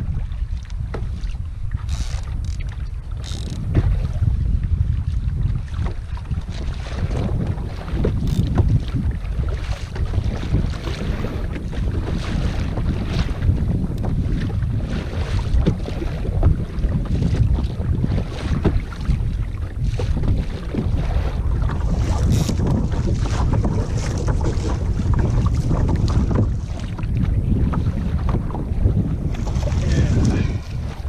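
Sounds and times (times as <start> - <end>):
water slapping against kayak hull: 0.0 - 31.0
wind buffeting microphone: 0.0 - 31.0
small splashes and knocks: 5.0 - 28.6.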